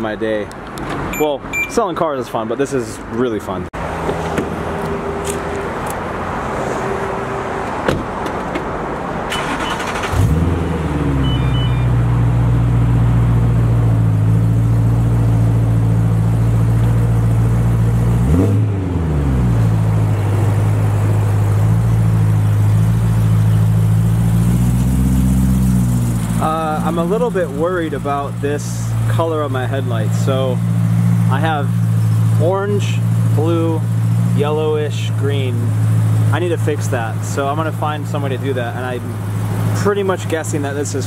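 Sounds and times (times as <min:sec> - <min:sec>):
car engine starting: 0:03.8 - 0:41.0
car door shutting: 0:07.6 - 0:08.7
car engine idling: 0:09.3 - 0:41.0
engine throttle blip: 0:11.2 - 0:12.0
short chimes: 0:11.2 - 0:12.0.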